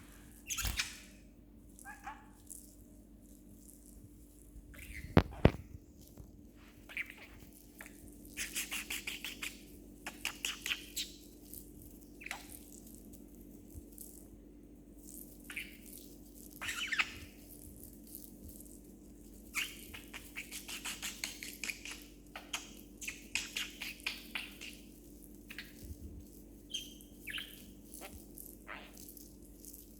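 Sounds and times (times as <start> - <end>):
low steady hum: 0.0 - 20.5
budgerigar chirping and chattering: 16.6 - 17.2, 26.7 - 29.0.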